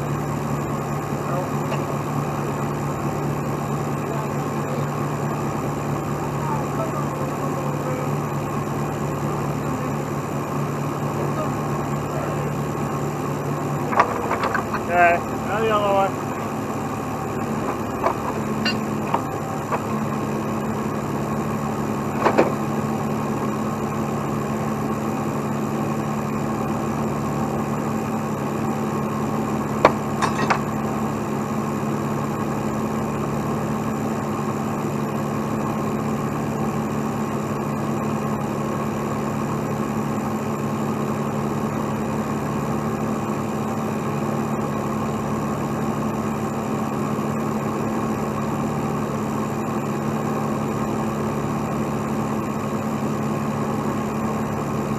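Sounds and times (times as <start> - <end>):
truck diesel engine running: 0.0 - 54.9
metallic clanks: 17.6 - 19.3, 30.2 - 30.7.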